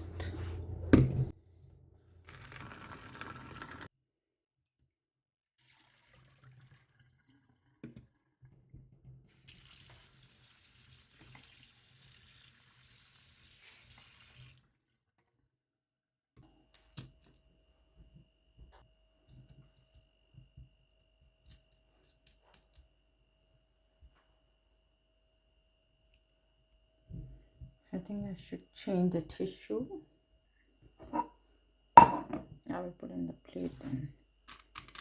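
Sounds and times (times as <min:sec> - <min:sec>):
tap water running into sink: 0:05.6 - 0:07.1, 0:09.3 - 0:14.6.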